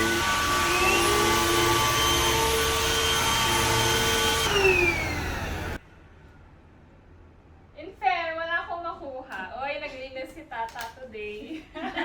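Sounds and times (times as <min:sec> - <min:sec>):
stick vacuum cleaner whine: 0:00.0 - 0:05.8.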